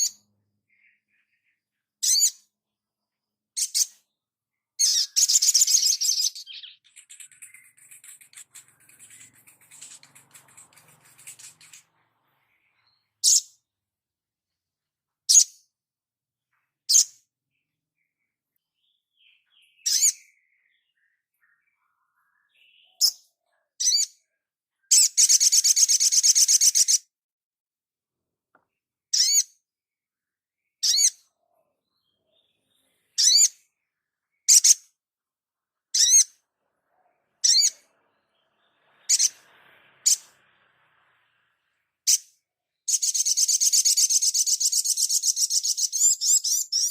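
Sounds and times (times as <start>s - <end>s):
songbird high-pitched calls: 0.0s - 13.7s, 15.3s - 15.7s, 16.9s - 27.1s, 29.1s - 29.7s, 30.6s - 35.0s, 35.8s - 46.9s
bird fast trill: 4.8s - 13.6s, 24.9s - 27.0s, 35.9s - 36.4s, 37.4s - 40.8s, 42.0s - 46.9s.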